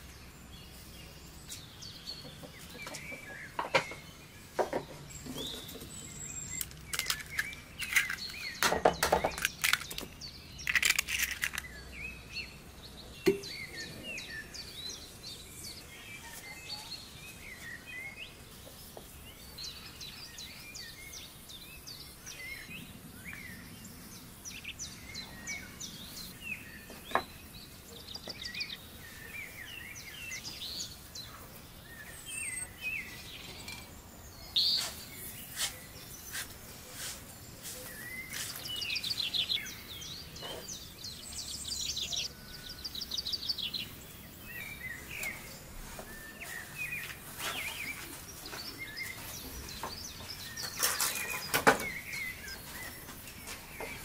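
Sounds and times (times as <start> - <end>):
small birds chirping: 0.0 - 54.0
sharp knocks and clatters: 2.8 - 4.0, 4.6 - 5.9, 6.6 - 10.1.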